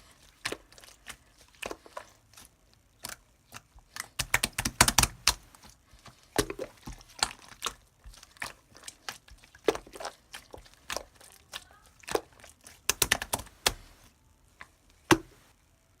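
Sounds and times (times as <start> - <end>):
slime clicking and popping: 0.4 - 5.5, 6.3 - 13.9.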